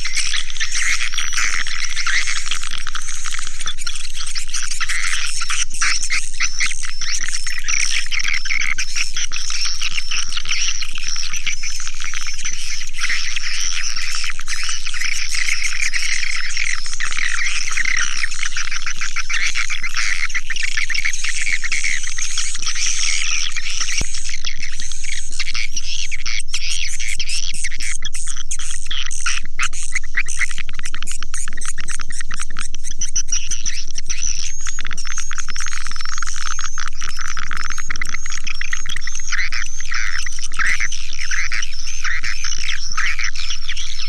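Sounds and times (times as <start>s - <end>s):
swiftlets twittering chirps: 30.0s - 44.0s.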